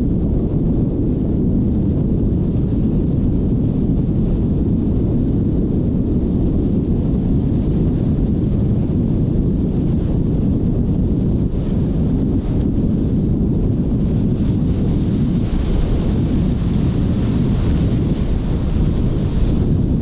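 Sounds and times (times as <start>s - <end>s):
strong wind blowing: 0.0s - 20.0s
sea surf: 13.9s - 20.0s.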